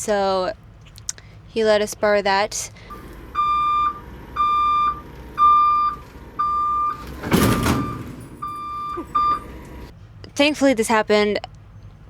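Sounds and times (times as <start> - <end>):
vehicle backup alarm beeping: 2.9 - 9.9.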